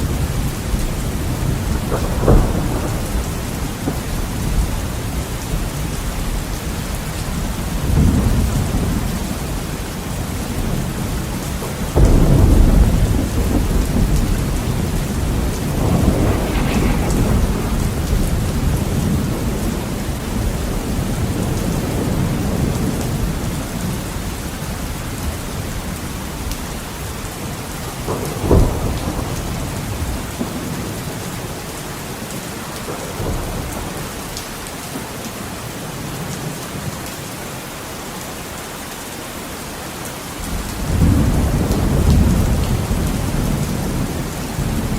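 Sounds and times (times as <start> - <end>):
thunder rumbling: 0.0 - 6.4, 11.7 - 23.5
heavy rain on a window: 0.0 - 44.9
sharp thunder crack: 12.0 - 20.6.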